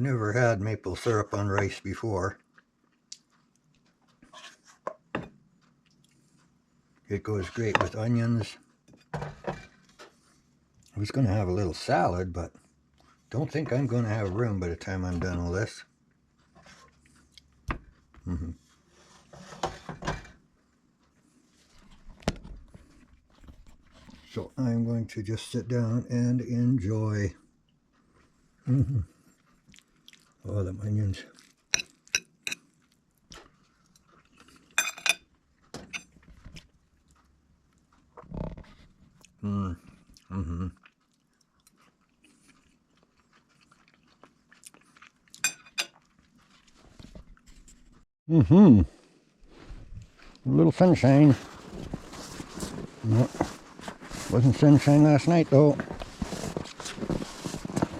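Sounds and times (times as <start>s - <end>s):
person chewing food: 2.4s - 7.0s, 16.0s - 19.1s, 27.6s - 30.4s, 31.2s - 47.5s.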